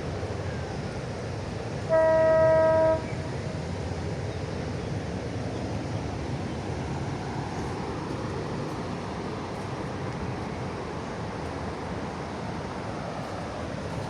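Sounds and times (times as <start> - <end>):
rush of wind and water: 0.0 - 14.0
ship's horn blast: 1.8 - 3.2.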